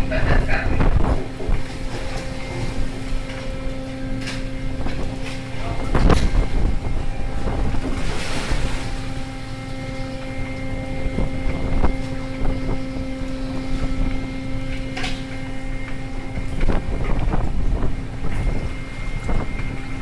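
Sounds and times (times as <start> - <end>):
boat engine droning: 0.0 - 20.0
wind buffeting microphone: 0.0 - 20.0.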